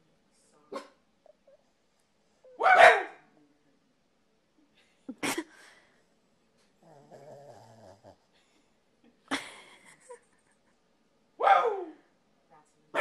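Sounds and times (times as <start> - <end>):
dog barking: 0.7 - 1.0, 2.5 - 3.2, 11.4 - 12.0
dog grumbling: 6.8 - 8.2.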